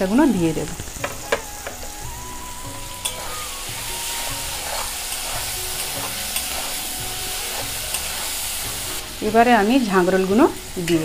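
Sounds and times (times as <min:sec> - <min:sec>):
masala sizzling in oil: 0:00.0 - 0:11.0
metal spatula stirring: 0:03.0 - 0:09.2.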